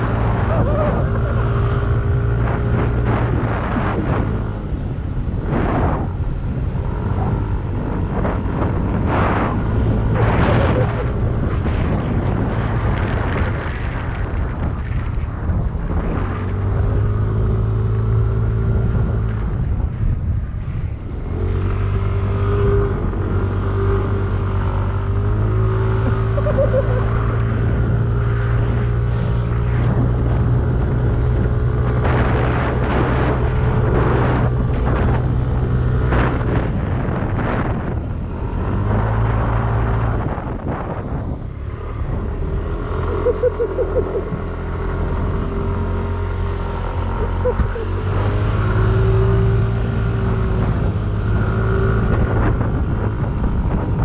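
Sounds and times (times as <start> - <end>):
scooter engine running: 22.2 - 36.4, 40.9 - 54.0.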